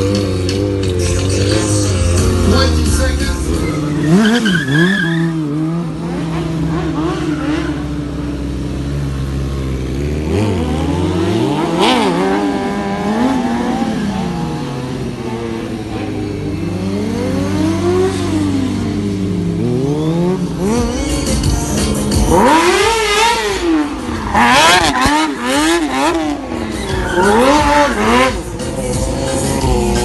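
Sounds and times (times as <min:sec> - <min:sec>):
motorcycle engines idling and revving: 0:00.0 - 0:30.0.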